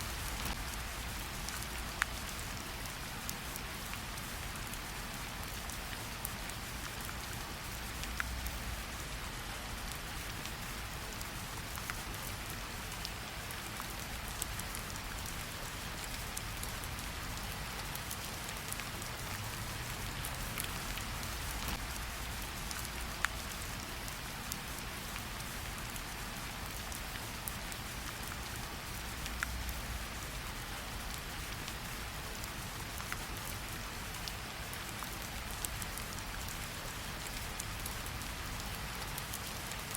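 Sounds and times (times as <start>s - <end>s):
raindrops ticking: 0.0s - 2.5s, 12.9s - 26.1s
rain hissing on surfaces: 0.0s - 39.9s.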